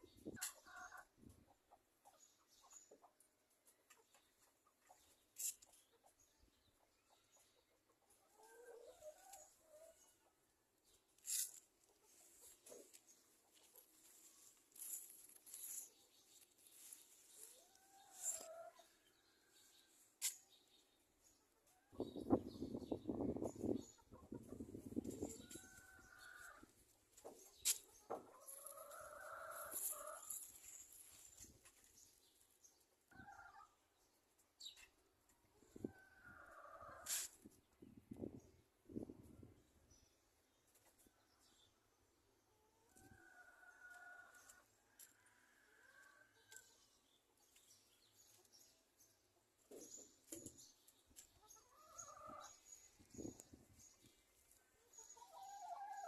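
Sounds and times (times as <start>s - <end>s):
chickens clucking: 0.0s - 32.0s, 49.3s - 56.0s.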